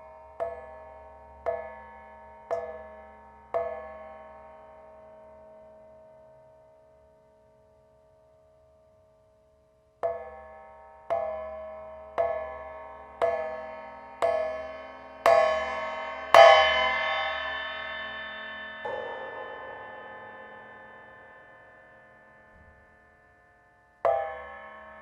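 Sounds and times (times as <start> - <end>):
bell-like percussion strokes ringing: 10.1 - 25.0
softer strike with different ring: 14.2 - 25.0.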